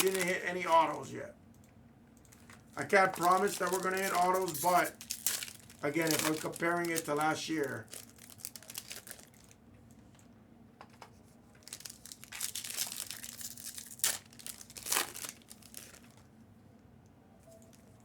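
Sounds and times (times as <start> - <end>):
plastic packaging crinkling: 0.0 - 1.2, 2.3 - 9.6, 11.6 - 16.3.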